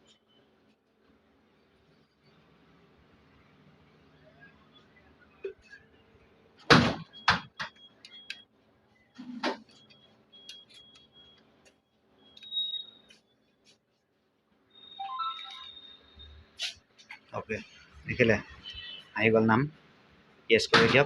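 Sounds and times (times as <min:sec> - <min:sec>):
keypad beeping: 0:09.7 - 0:11.4, 0:14.8 - 0:16.2.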